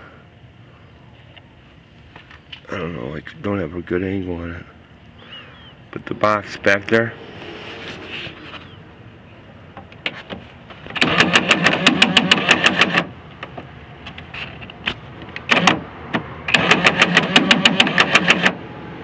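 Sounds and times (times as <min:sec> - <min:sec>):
rapid even clicking: 0:10.9 - 0:13.1, 0:15.4 - 0:18.6.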